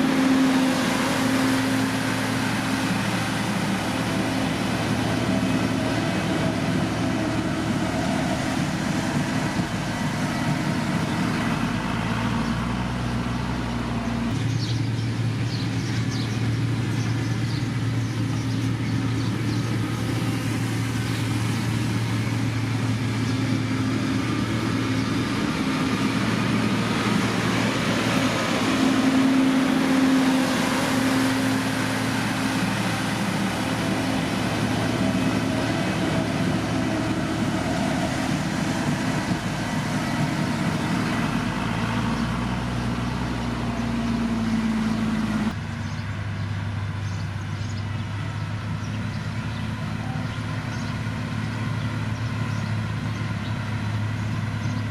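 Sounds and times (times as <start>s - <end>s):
another steady engine: 0.0s - 54.9s
heavy machinery diesel engine: 0.0s - 54.9s.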